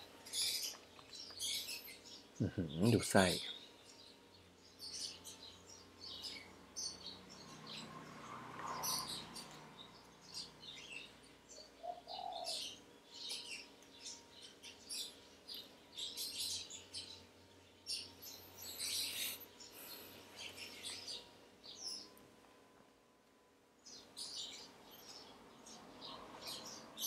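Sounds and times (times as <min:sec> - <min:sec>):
birds chirping faintly: 0:00.0 - 0:27.0
faint steady hum: 0:09.6 - 0:27.0.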